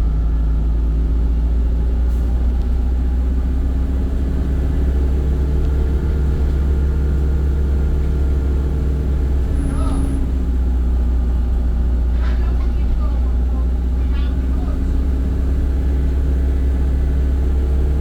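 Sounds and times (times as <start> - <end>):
bus engine rumble: 0.0 - 18.0.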